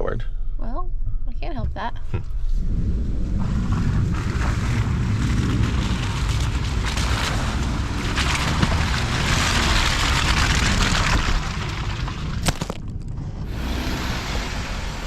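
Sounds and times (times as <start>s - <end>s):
vehicle driving low rumble: 0.0s - 15.0s
wind on microphone: 1.2s - 12.2s.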